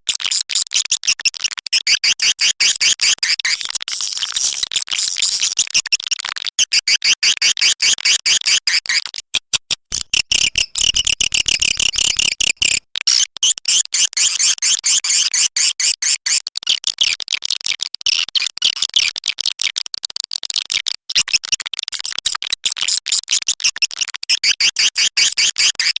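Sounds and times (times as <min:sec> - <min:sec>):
swiftlets twittering: 0:09.4 - 0:12.8.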